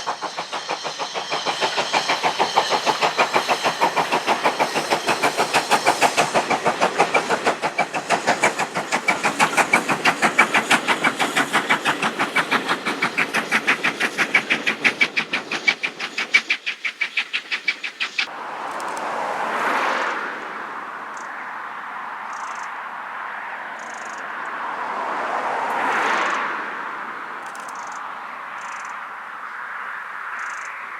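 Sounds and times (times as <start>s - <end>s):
hiss: 0.0s - 18.3s
train passing at speed: 0.0s - 30.9s.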